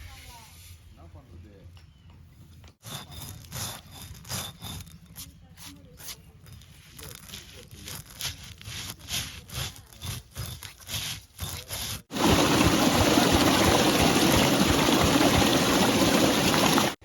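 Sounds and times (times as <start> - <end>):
stone roller scraping slab: 6.2 - 17.0
running water rushing: 12.1 - 17.0.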